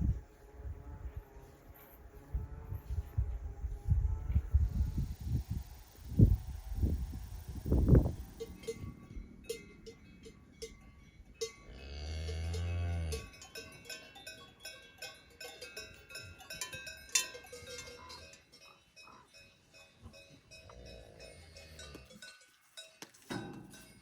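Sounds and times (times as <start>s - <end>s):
cowbells clanking: 7.4s - 24.0s
cow mooing: 11.7s - 13.3s.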